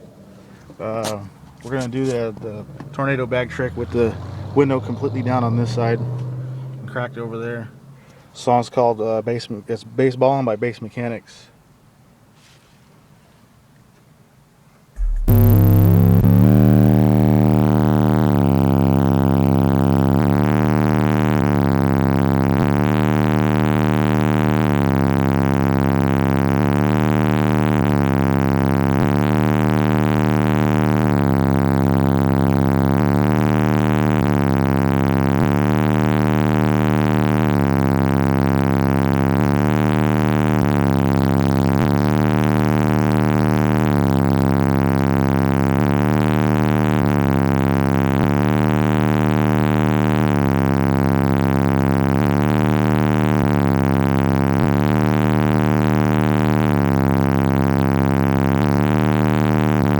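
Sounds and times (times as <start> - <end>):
loud bass music from subwoofers: 15.0 - 59.9.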